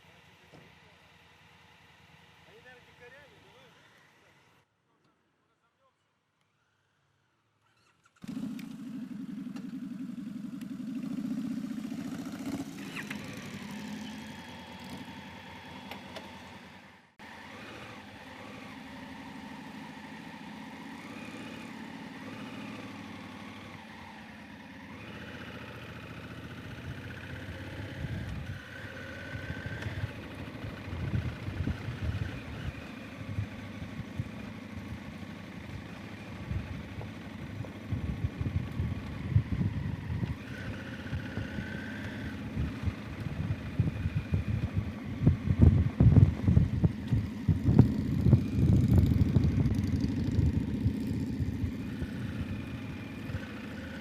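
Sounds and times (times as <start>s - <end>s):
motorcycle engine running: 8.2s - 54.0s.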